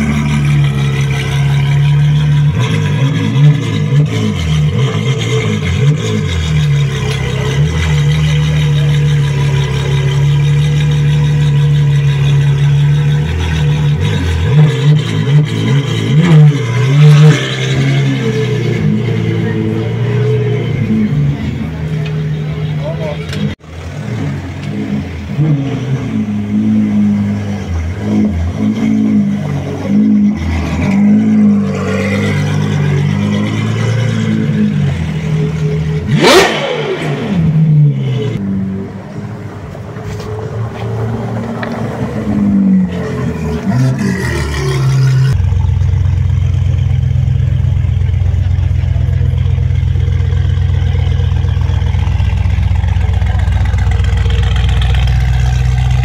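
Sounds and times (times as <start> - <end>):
car engine idling loudly: 0.0 - 25.3, 43.1 - 56.0
car engine at low revs: 0.0 - 56.0.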